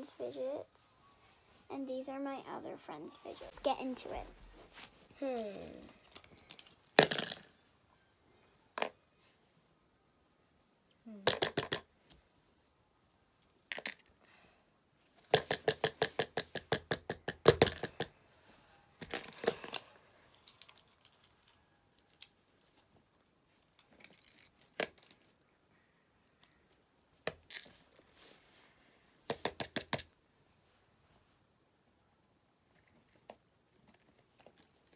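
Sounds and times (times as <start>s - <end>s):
soft handling noise: 3.2s - 7.0s.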